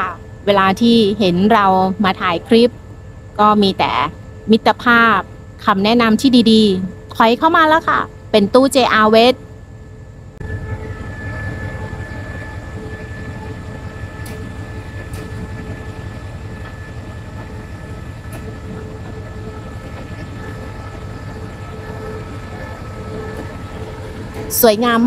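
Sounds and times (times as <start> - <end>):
steady hum: 0.0 - 25.0
train rumble: 0.0 - 25.0.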